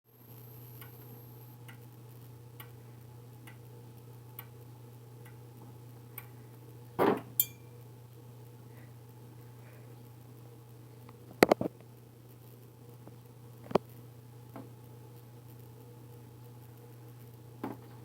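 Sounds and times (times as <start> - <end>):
sharp click with high ring: 7.4 - 7.7.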